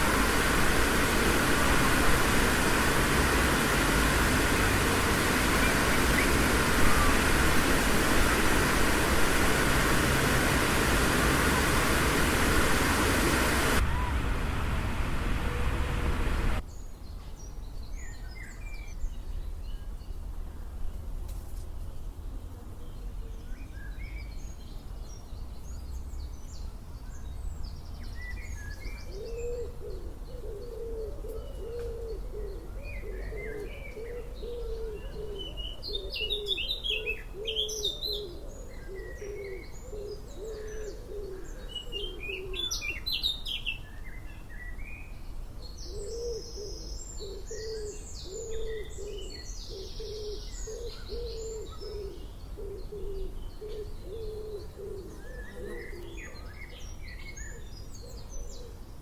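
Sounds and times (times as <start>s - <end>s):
low cooing bird call: 0.0s - 16.6s, 29.1s - 43.0s, 45.9s - 56.5s
low steady rumble: 0.0s - 16.6s
small birds chirping: 0.0s - 16.6s.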